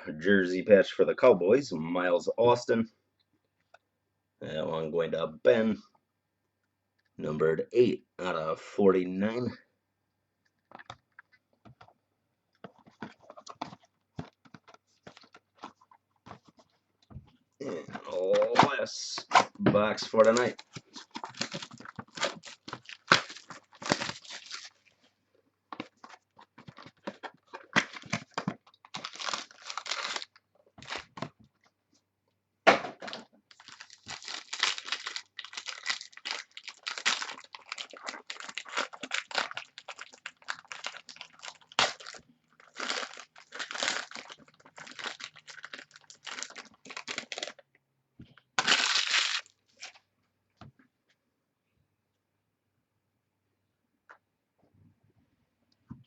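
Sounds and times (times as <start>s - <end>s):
plastic wrapping tearing and crinkling: 20.1s - 24.9s, 26.7s - 31.2s, 33.5s - 47.6s, 48.6s - 50.0s.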